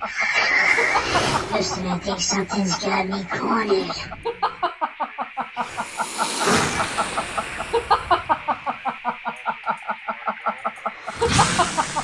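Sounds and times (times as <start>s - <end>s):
rapid clucking chatter: 0.0s - 6.0s, 6.8s - 11.2s
hiss: 0.1s - 2.0s, 5.5s - 9.3s, 10.8s - 12.0s.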